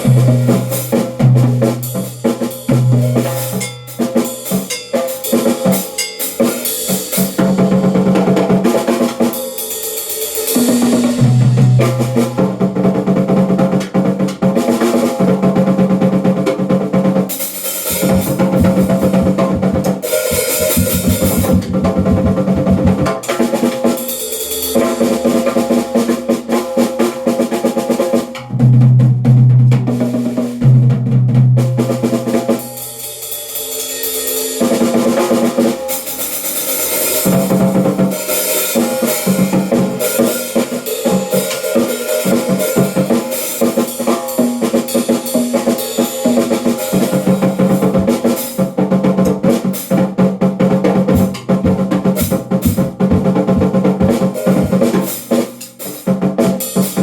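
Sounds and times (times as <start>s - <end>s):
drum kit playing: 0.0s - 57.0s
accompanying music: 17.7s - 24.6s.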